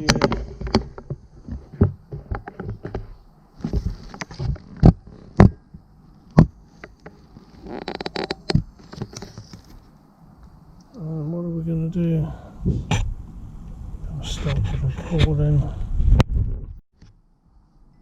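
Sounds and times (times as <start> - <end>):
recording gear handling noise: 0.0 - 10.0.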